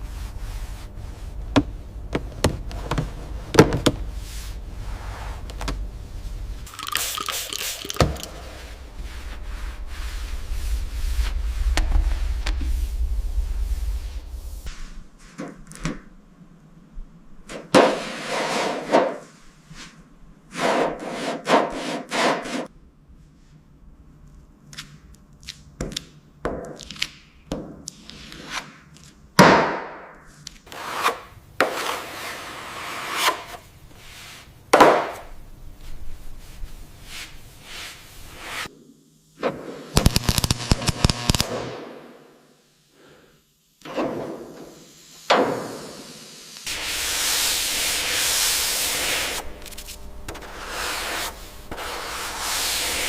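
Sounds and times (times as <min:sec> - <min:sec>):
sharp hits: 0:40.0 - 0:42.2.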